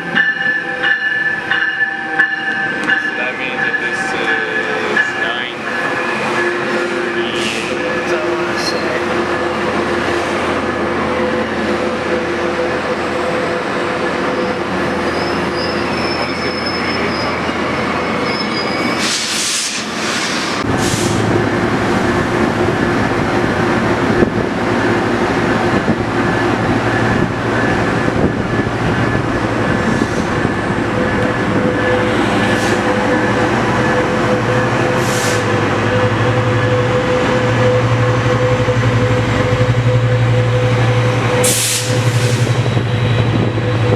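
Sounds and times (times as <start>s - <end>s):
high wheel squeals: 14.3s - 20.6s.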